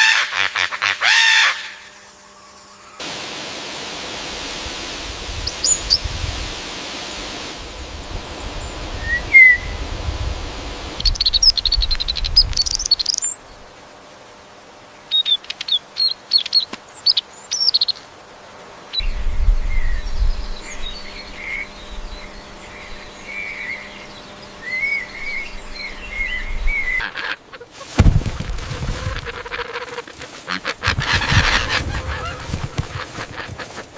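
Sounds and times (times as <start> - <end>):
bird warbling song: 11.0 - 13.5, 15.1 - 18.0, 18.9 - 33.9
birds chirping: 11.0 - 13.7, 18.9 - 33.9.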